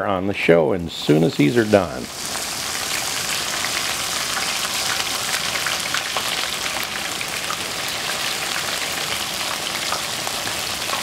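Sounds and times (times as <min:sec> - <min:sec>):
tomato slices deep-frying in oil: 0:00.8 - 0:11.0
oil crackles and pops: 0:01.5 - 0:11.0.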